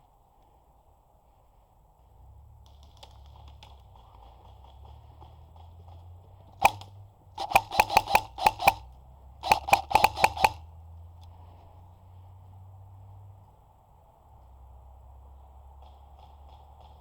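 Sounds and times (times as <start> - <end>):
airsoft gun firing: 6.6 - 10.6.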